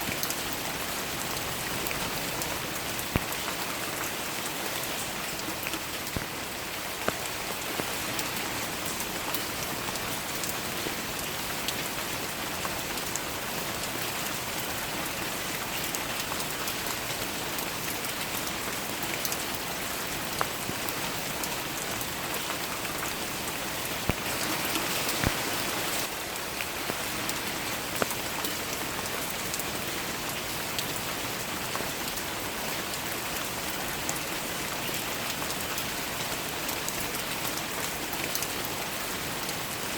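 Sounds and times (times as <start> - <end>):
rain pattering on leaves: 0.0 - 39.9
individual raindrop hits: 1.4 - 3.6, 24.0 - 26.1.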